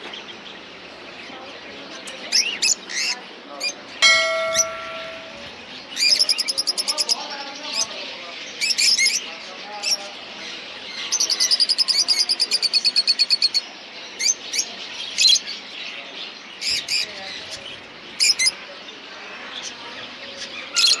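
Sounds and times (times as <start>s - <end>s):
background murmur: 0.0s - 6.0s.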